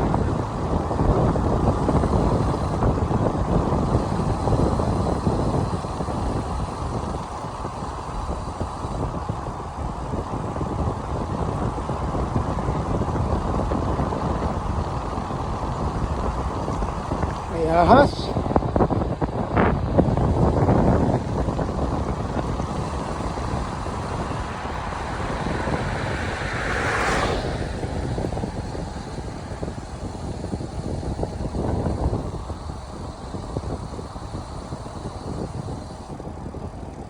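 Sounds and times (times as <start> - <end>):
wind rush on microphone: 0.0 - 37.0
vehicle passing: 20.2 - 30.5.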